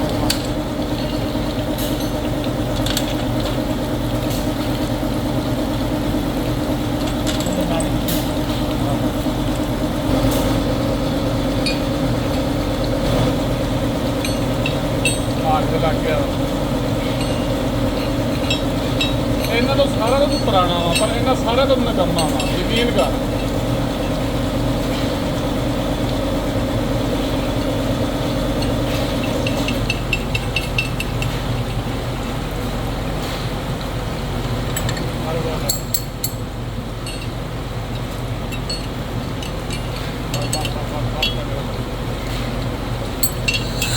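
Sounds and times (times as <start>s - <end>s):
factory machinery humming: 0.0s - 43.9s
metallic clinks: 43.2s - 43.9s.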